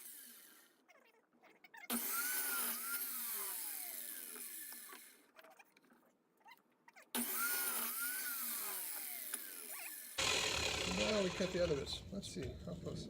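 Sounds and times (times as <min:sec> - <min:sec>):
miter saw winding down: 0:07.2 - 0:12.1.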